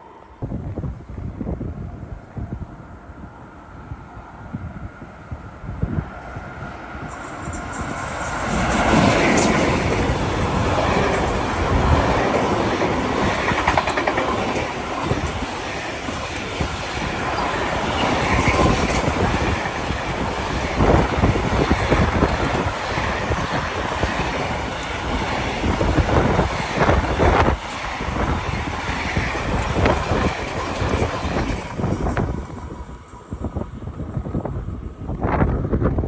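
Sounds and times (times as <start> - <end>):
train wheels clattering over rails: 7.1 - 32.5.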